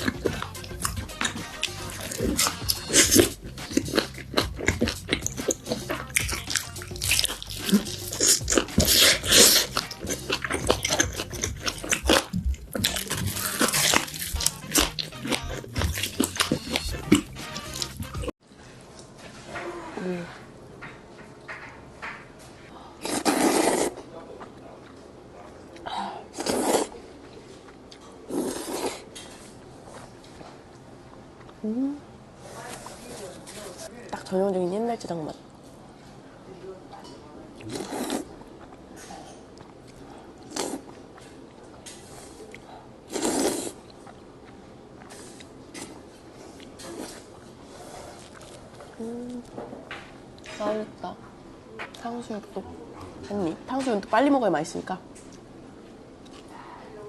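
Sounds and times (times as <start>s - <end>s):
person crunching and chewing food: 0.0s - 18.3s, 37.6s - 49.6s
person eating noodles: 0.0s - 18.3s, 23.0s - 24.1s, 26.3s - 27.1s, 27.7s - 29.1s, 37.6s - 38.8s, 39.8s - 41.4s, 42.0s - 49.5s.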